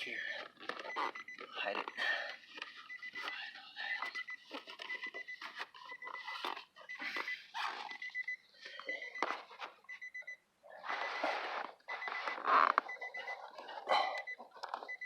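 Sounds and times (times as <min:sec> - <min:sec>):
car key reminder chime beeping: 0:12.9 - 0:15.0.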